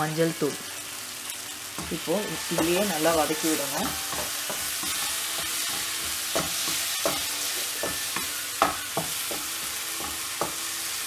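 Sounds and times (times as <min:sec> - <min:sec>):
sauce sizzling in oil: 0:00.0 - 0:11.0
spatula knocking against pan: 0:03.8 - 0:10.6.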